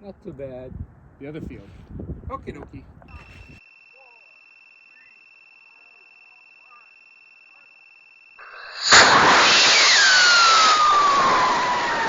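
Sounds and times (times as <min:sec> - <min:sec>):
crickets chirping: 0:03.1 - 0:12.0
rocket motor roaring: 0:08.4 - 0:12.0
whistling tone falling in pitch: 0:08.5 - 0:12.0.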